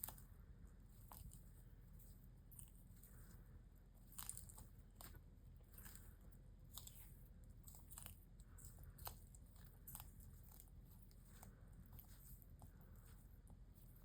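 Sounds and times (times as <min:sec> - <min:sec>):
low steady hum: 0:00.0 - 0:14.0
tortoises chewing leaves: 0:00.0 - 0:14.0.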